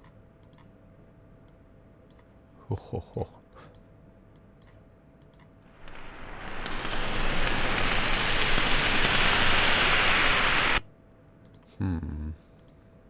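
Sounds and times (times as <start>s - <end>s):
muffled fire hiss: 5.6s - 10.8s.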